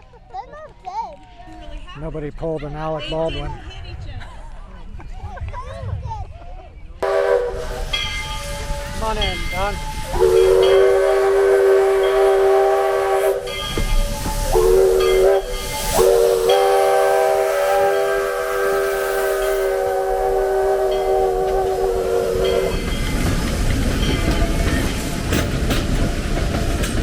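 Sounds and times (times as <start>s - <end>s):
steam locomotive whistle: 7.0s - 25.4s
steam hissing: 7.0s - 27.0s.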